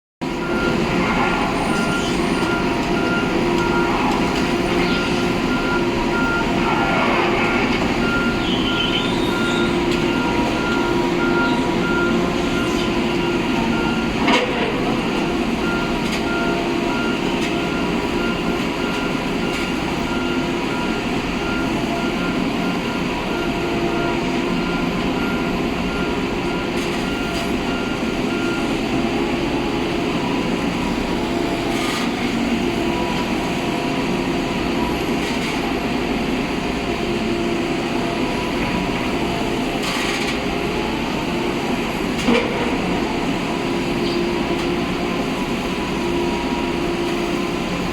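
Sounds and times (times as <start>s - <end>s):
heavy diesel engine running: 0.2s - 47.9s.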